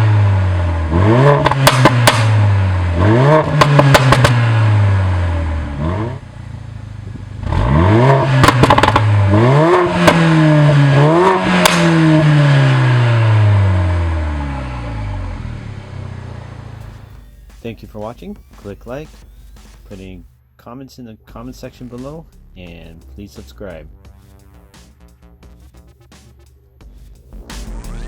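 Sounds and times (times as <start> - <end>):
car engine revving: 0.0 - 20.0
car engine idling: 0.0 - 20.4
exhaust pops and crackles: 0.9 - 20.3.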